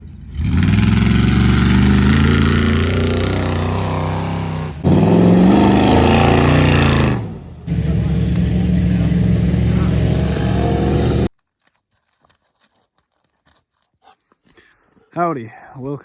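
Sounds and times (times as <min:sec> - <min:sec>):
loud engine revving: 0:00.0 - 0:11.3.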